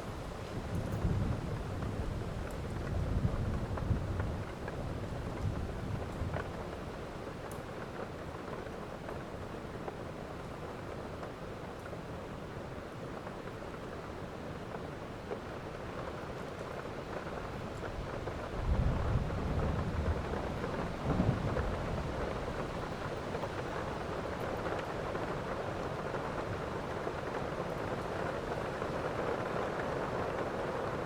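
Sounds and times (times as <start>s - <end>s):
heavy rain: 0.0s - 31.0s
thunder rumbling: 18.5s - 22.9s.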